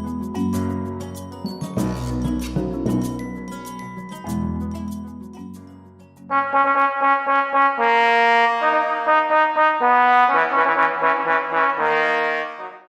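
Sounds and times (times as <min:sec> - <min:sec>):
background music: 0:00.0 - 0:12.8
brass fanfare: 0:01.8 - 0:02.5, 0:06.3 - 0:12.9.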